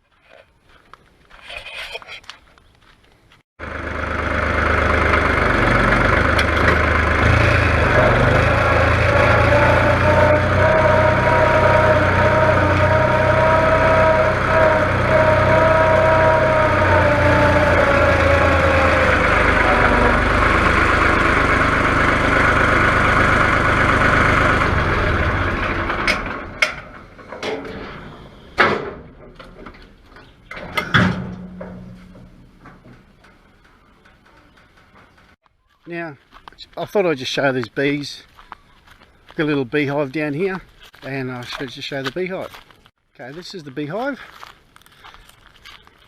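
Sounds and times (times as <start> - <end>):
tractor engine running: 3.6 - 35.4.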